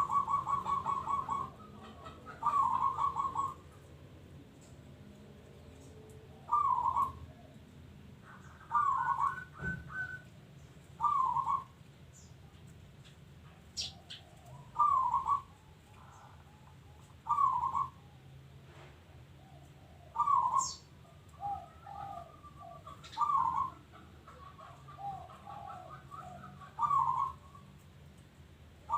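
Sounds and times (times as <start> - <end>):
dove cooing: 0.0 - 3.9, 5.9 - 10.3, 11.0 - 11.8, 13.8 - 18.2, 19.4 - 27.8
high bird chirp: 20.2 - 23.8.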